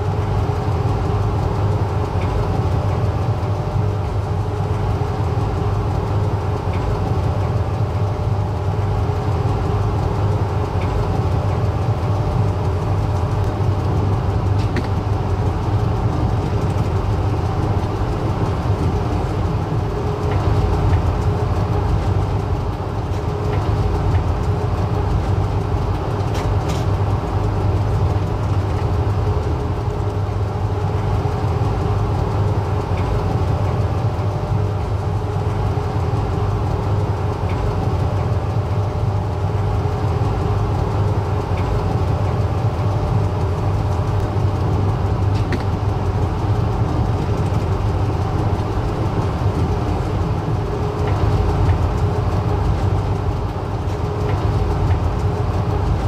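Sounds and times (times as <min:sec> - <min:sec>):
passenger train rumbling: 0:00.0 - 0:56.0.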